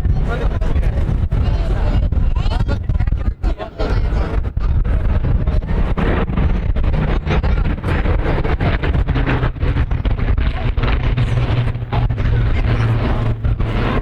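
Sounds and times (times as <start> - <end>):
aircraft piston engine drone: 0.0 - 14.0
wind on microphone: 0.0 - 14.0.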